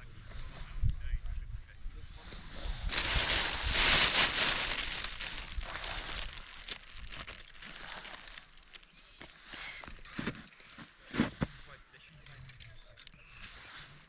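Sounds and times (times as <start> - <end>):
close rustling and crinkling: 2.9 - 14.0.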